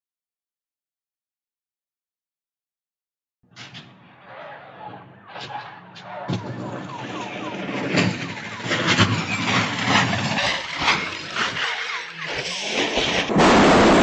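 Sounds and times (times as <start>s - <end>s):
loud road noise: 3.5s - 14.0s.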